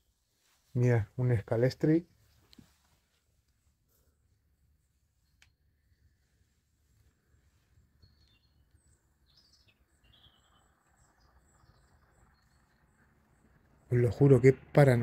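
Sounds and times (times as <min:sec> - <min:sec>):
faint bird chirps: 0:04.0 - 0:14.2.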